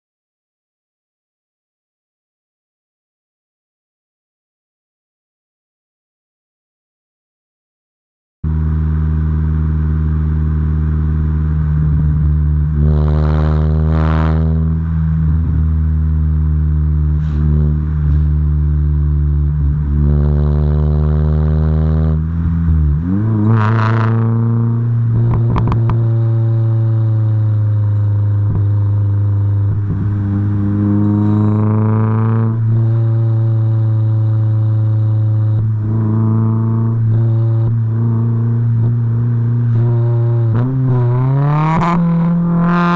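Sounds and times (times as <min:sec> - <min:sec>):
engine throttle blips: 0:08.4 - 0:42.9
car engine idling: 0:08.5 - 0:12.9, 0:24.3 - 0:36.3.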